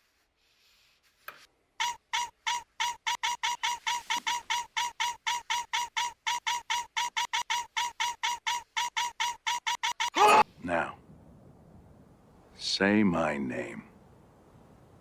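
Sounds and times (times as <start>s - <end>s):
rapid repeated squeaks: 1.8s - 10.4s.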